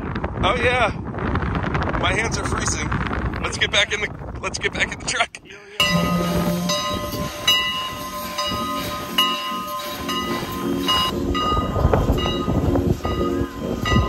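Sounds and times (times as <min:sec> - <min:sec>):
metallic ringing tones: 0:05.8 - 0:14.0
steam train rumble: 0:05.8 - 0:14.0.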